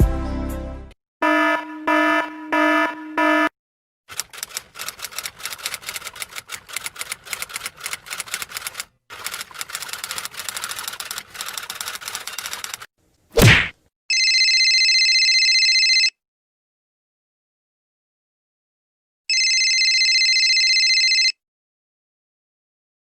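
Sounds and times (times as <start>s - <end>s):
rapid key clicks: 4.1s - 12.9s.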